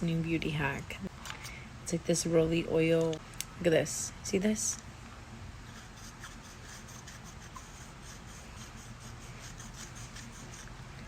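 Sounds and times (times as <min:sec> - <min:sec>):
stone roller scratching on skin: 0:05.7 - 0:10.7.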